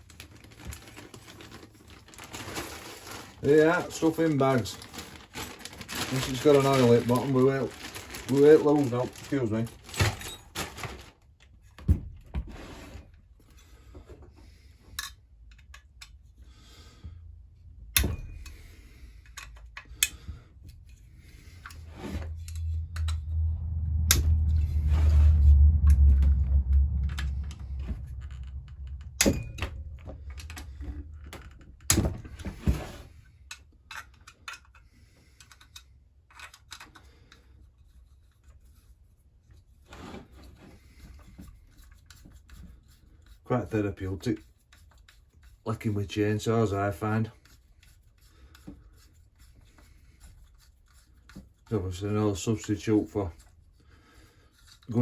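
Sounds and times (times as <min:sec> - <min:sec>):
low rumble: 0:20.2 - 0:33.3.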